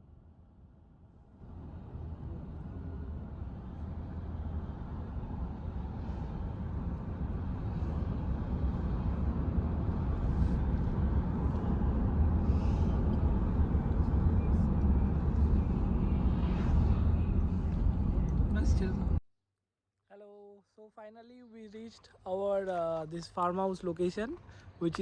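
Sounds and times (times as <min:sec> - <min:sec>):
low rumbling noise: 0:01.3 - 0:19.2.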